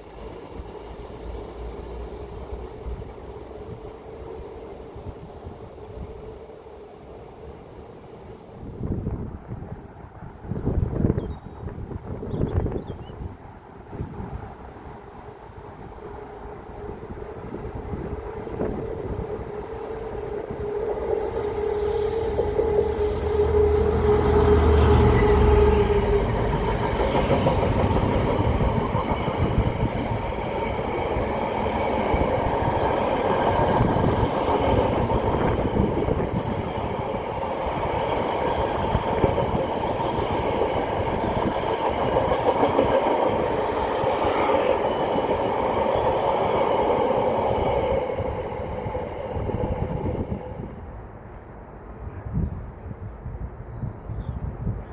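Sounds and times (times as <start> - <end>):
train wheels rolling on rail: 8.2 - 52.0
diesel train engine drone: 13.6 - 51.7.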